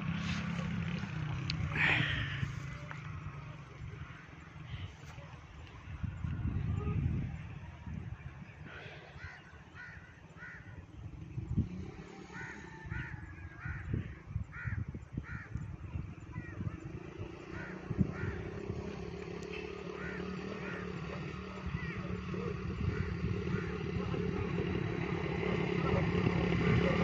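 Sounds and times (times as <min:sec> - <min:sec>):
crows cawing: 0:09.2 - 0:10.8, 0:12.2 - 0:15.6, 0:17.5 - 0:18.6, 0:19.5 - 0:22.1, 0:22.9 - 0:23.8.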